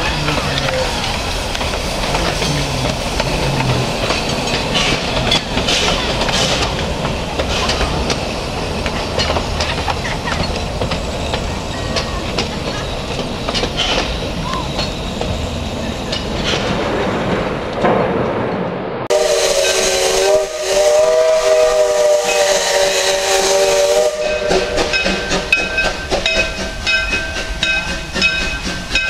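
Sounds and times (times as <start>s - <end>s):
wheels clicking over rail joints: 0.0s - 18.0s, 24.2s - 29.0s
train rumbling on track: 0.0s - 29.0s.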